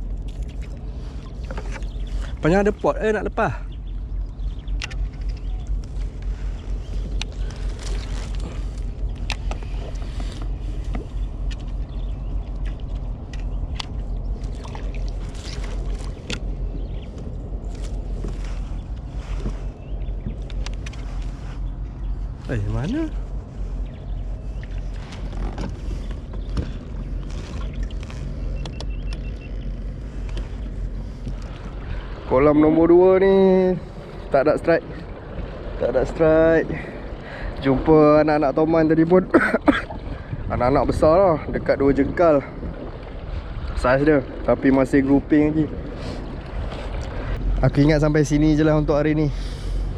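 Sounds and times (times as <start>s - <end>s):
wind on microphone: 0.0s - 39.0s, 39.8s - 49.9s
low rumble with hiss: 0.0s - 49.9s
small water splashes: 0.1s - 2.6s, 6.0s - 19.6s
clicks against hull: 0.2s - 2.4s, 3.9s - 21.4s, 24.6s - 32.0s.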